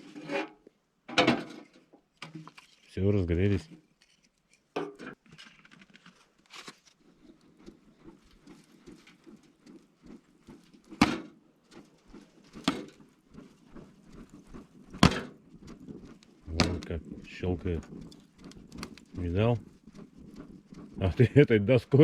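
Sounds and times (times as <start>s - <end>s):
campfire crackling: 6.4s - 22.0s.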